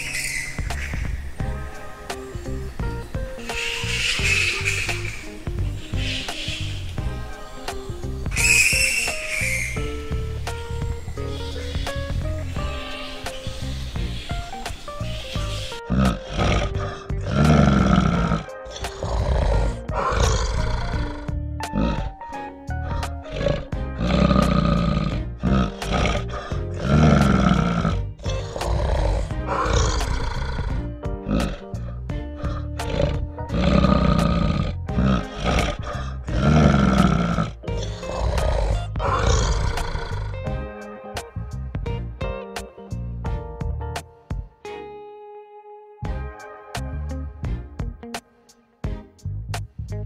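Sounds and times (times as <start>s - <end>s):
background music: 0.0s - 50.0s
large animal growling: 15.4s - 22.2s, 22.8s - 40.6s.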